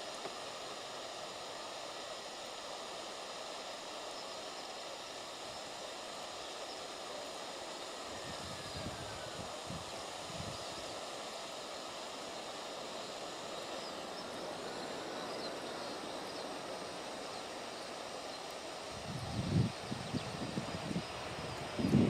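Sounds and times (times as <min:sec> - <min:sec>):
distant aircraft engine: 0:00.0 - 0:22.0.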